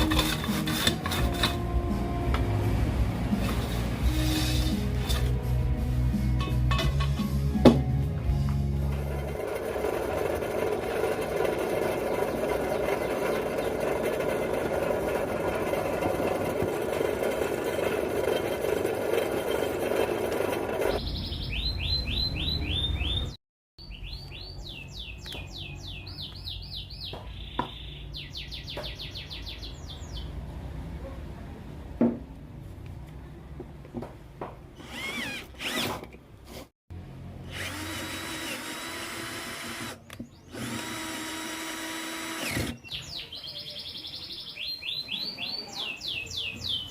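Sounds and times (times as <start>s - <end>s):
power drill running: 8.6s - 21.0s, 34.8s - 36.1s, 37.4s - 42.8s.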